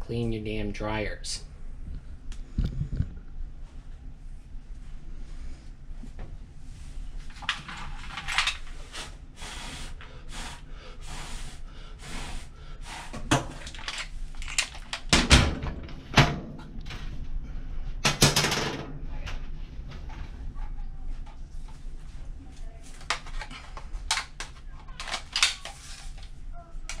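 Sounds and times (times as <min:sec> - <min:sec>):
rustling and scraping: 0:19.4 - 0:27.0.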